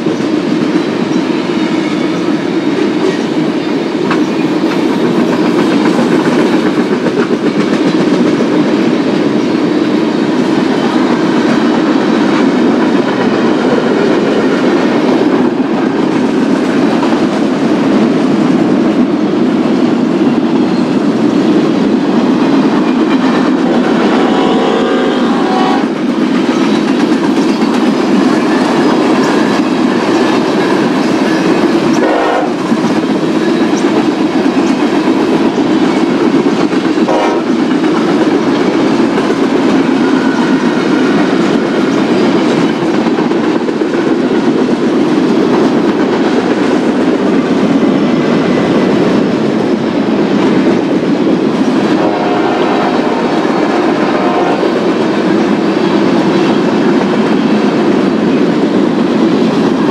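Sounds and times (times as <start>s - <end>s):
freight train wheels rumbling: 0.0s - 59.9s
railcars clickety-clack: 0.0s - 59.9s.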